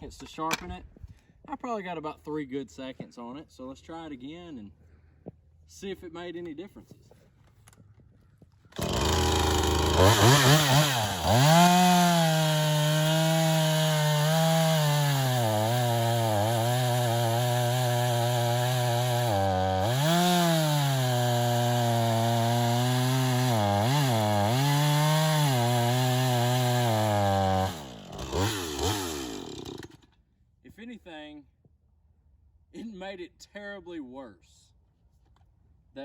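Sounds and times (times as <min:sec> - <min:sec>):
chainsaw engine at high throttle: 0:08.8 - 0:30.0.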